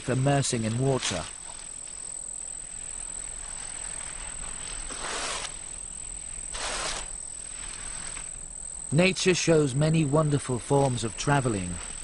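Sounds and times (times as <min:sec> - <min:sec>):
high-pitched insect drone: 0:00.1 - 0:12.0
sand sliding swishes: 0:03.4 - 0:05.8, 0:06.5 - 0:08.4.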